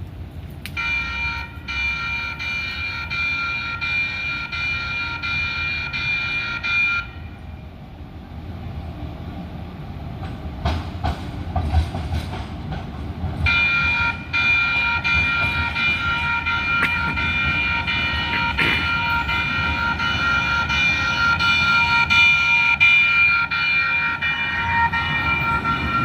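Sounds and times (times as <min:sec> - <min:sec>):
train rumble: 0:00.0 - 0:26.0
electronic warning bell ringing: 0:00.8 - 0:07.2, 0:13.5 - 0:26.0
rail clatter: 0:10.0 - 0:26.0.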